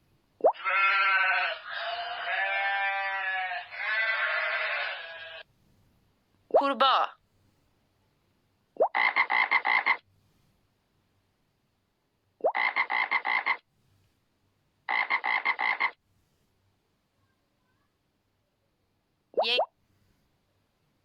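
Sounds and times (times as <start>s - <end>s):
frog croaking: 8.8s - 10.0s, 12.4s - 13.6s, 14.9s - 16.0s.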